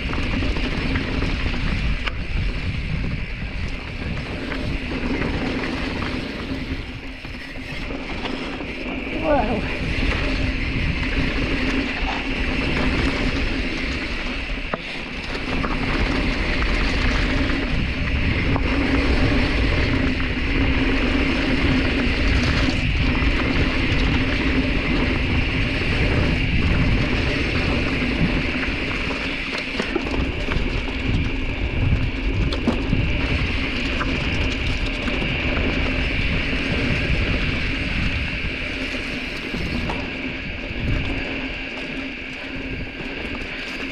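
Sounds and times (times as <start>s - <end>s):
bike rattling and knocking: 0.0s - 43.9s
bike tyres rumbling over dirt: 0.0s - 43.9s.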